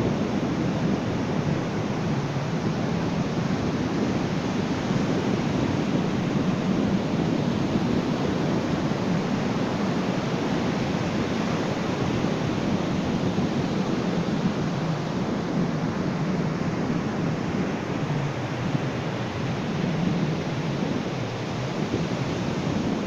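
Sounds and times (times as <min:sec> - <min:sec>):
ocean waves on beach: 0:00.0 - 0:23.0.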